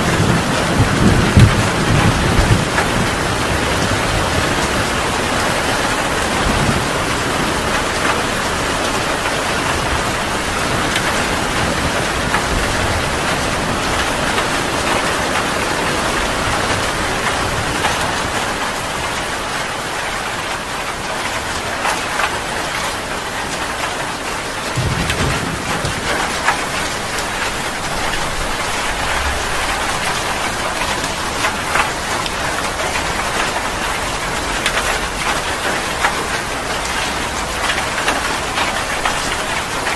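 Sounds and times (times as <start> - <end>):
thunder rumbling: 0.0 - 18.4, 24.6 - 36.3
heavy rain falling: 0.0 - 39.9.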